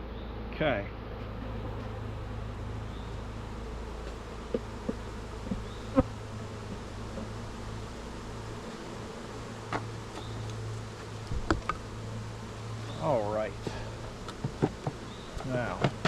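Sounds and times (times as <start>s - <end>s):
honeybees buzzing: 0.0s - 16.0s
clicks and knocks from hive: 3.9s - 6.1s, 6.9s - 7.6s, 9.6s - 12.0s, 13.6s - 16.0s.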